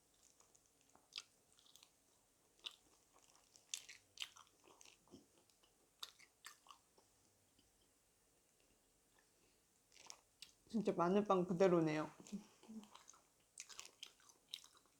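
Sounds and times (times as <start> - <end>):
faint chewing: 0.0 - 10.7, 12.1 - 14.9
crispy chicken crunching: 0.1 - 6.9, 9.9 - 10.6, 12.2 - 14.9.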